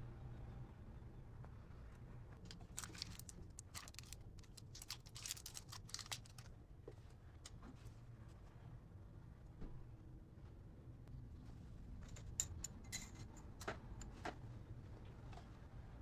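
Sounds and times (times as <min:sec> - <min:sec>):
rustling and clicking of hands: 0:02.5 - 0:06.5.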